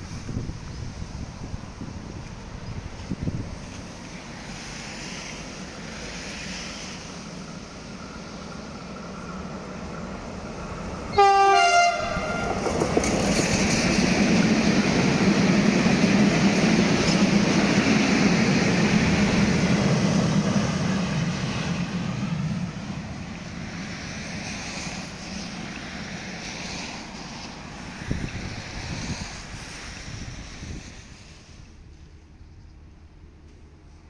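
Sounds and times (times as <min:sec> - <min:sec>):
train passing: 0:00.0 - 0:34.0
train horn blast: 0:11.1 - 0:12.7.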